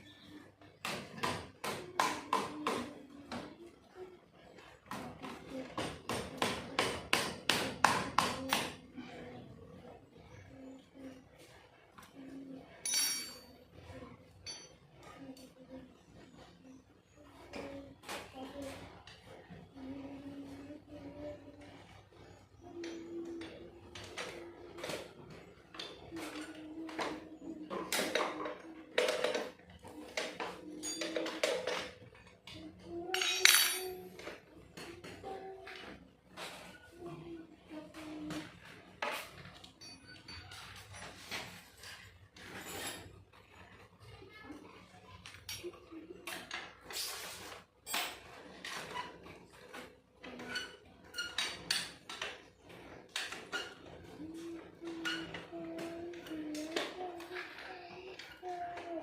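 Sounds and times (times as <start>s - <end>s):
metal tools clinking and clanking: 12.8s - 13.6s, 14.4s - 14.8s, 33.1s - 34.2s, 39.2s - 43.2s.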